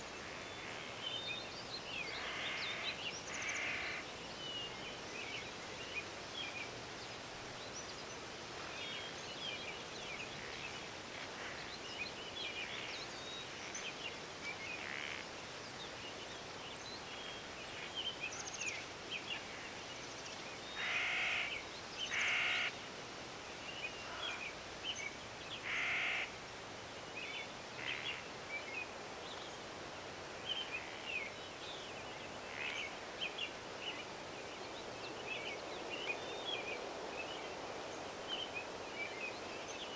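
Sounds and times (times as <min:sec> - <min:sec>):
background hiss: 0:00.0 - 0:39.9
crow cawing: 0:20.8 - 0:21.5, 0:22.1 - 0:22.7, 0:25.7 - 0:26.3.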